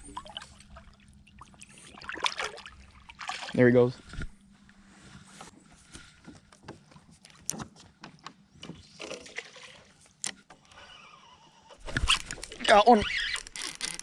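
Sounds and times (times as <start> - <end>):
fishing gear clicking and knocking: 11.9 - 14.0.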